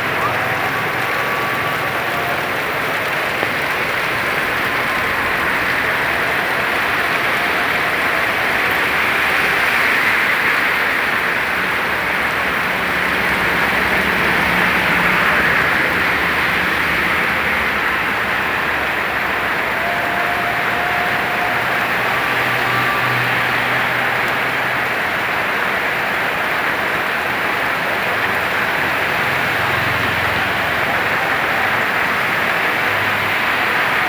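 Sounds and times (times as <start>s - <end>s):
heavy rain: 0.0s - 34.0s.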